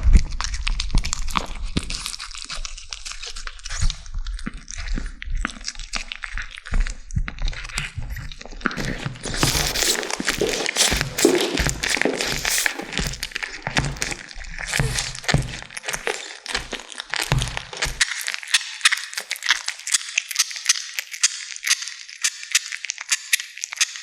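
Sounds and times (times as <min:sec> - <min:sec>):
kittens chewing bone: 0:09.2 - 0:24.0.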